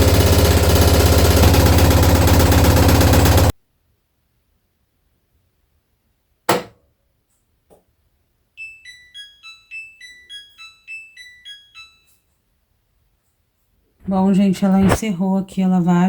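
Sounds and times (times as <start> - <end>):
washing machine beeping tune: 0.0 - 3.5, 8.6 - 12.3.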